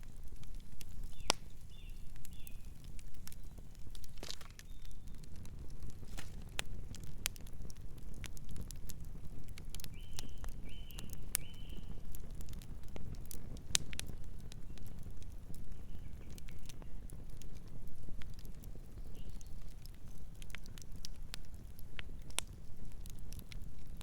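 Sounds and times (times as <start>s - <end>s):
campfire crackling and popping: 0.0s - 24.0s
night bird chirps: 9.9s - 11.9s.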